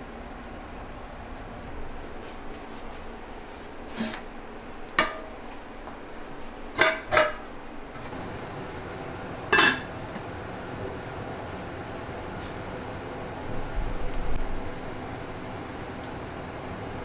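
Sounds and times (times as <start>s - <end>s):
utensils clinking against dishes: 4.9s - 5.5s, 6.7s - 8.2s, 9.5s - 10.0s.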